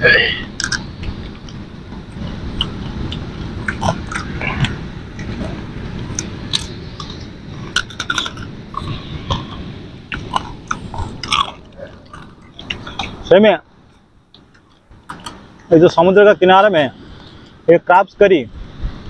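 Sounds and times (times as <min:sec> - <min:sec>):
low rumble: 0:00.0 - 0:17.7
crab being chewed: 0:00.5 - 0:13.3.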